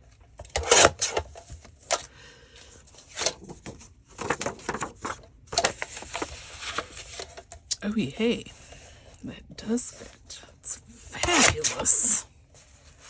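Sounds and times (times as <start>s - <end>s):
paper rustling: 0.6s - 7.6s, 11.2s - 13.0s.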